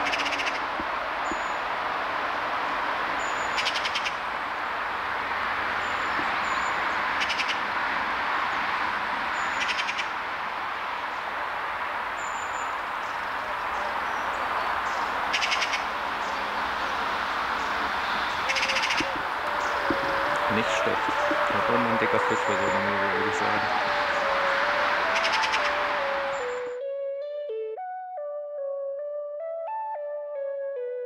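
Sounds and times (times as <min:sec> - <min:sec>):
rapid high bird trills: 0:00.0 - 0:01.6, 0:03.2 - 0:04.2, 0:05.8 - 0:07.7, 0:09.3 - 0:10.2, 0:12.2 - 0:26.7
steady rushing noise: 0:00.0 - 0:26.8.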